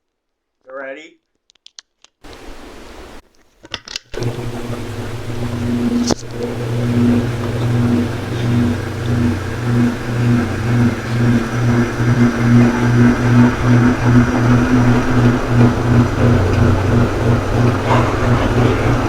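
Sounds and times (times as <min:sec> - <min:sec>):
ceiling fan motor humming: 0:04.2 - 0:19.0
rush of air from fan blades: 0:04.2 - 0:19.0.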